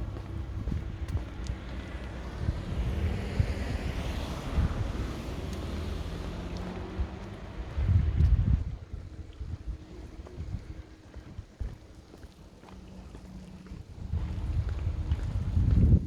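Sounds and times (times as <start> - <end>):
car driving past: 0.0 - 8.2
wind buffeting microphone: 0.0 - 12.3, 13.0 - 16.0.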